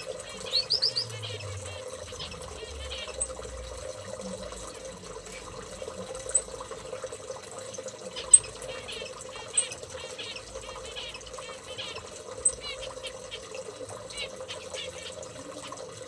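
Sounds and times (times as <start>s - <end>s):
small birds chirping: 0.0s - 3.7s, 8.0s - 16.0s.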